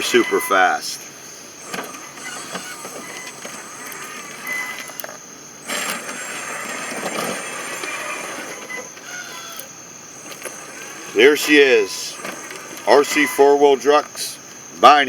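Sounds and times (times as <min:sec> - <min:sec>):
toy truck electric motor and gears: 0:00.0 - 0:15.0.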